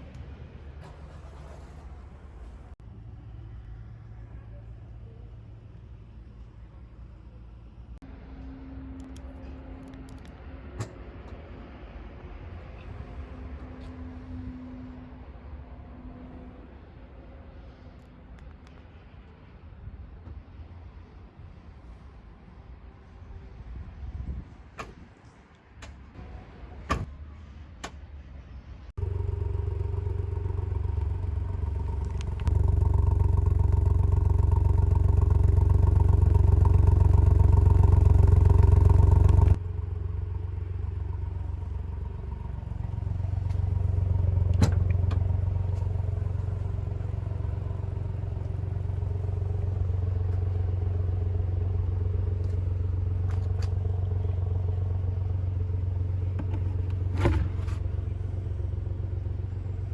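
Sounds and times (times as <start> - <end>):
car engine running steadily: 0.0 - 8.2, 29.0 - 59.9.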